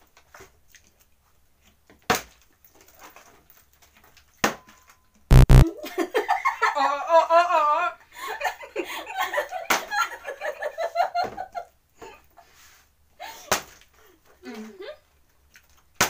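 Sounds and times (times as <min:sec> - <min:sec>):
women laughing: 0:05.8 - 0:11.6.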